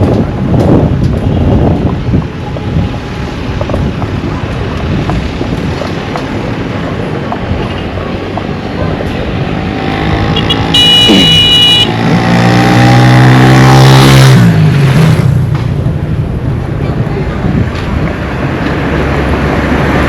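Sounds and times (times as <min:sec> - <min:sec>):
vehicle road noise: 0:00.0 - 0:20.0
car horn beeps: 0:10.3 - 0:12.0.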